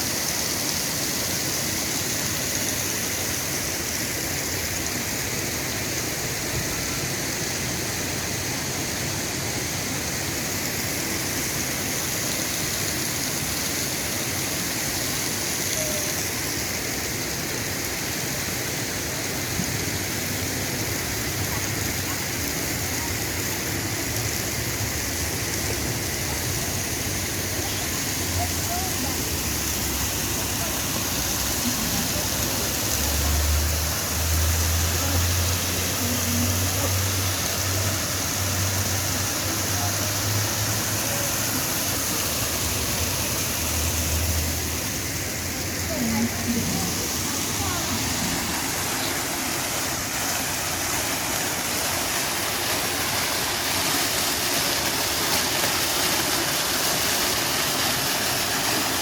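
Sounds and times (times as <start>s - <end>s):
rushing falling water: 0.0s - 59.0s.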